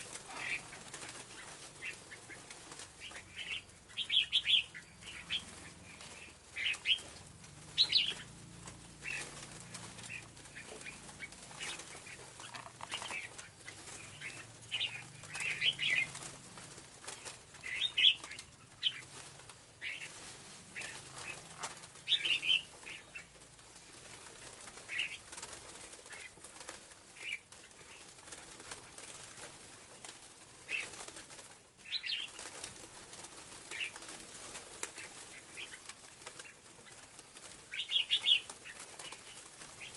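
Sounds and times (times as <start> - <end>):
bird chirping: 0.0 - 8.4, 9.0 - 16.4, 17.0 - 23.4, 31.8 - 32.4, 37.7 - 39.9.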